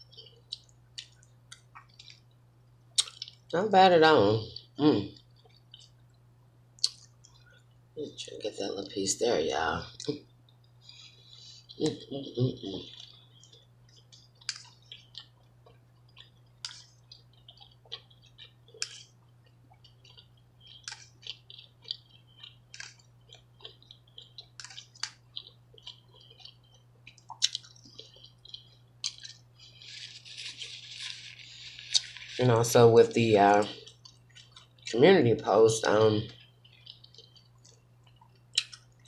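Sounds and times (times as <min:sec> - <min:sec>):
wet chewing mouth clicks: 0:00.0 - 0:02.3, 0:03.0 - 0:03.4, 0:06.8 - 0:07.7, 0:10.0 - 0:32.4, 0:36.3 - 0:39.0
steady low hum: 0:00.0 - 0:39.0.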